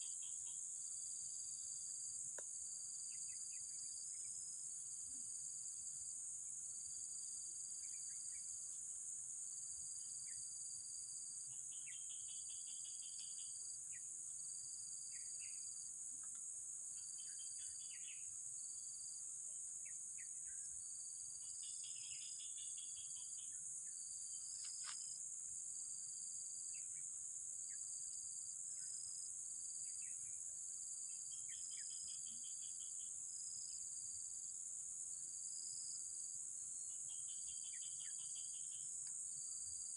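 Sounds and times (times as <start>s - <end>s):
insect chorus: 0.0s - 39.9s
pulsing insect call: 17.0s - 18.4s, 21.3s - 25.2s, 31.0s - 33.8s, 36.8s - 39.9s.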